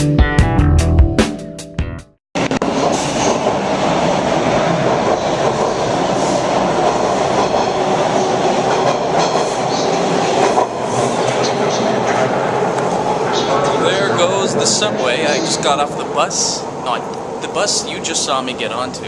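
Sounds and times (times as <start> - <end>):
intro music: 0.0 - 2.2
subway train rumbling on track: 2.4 - 19.0.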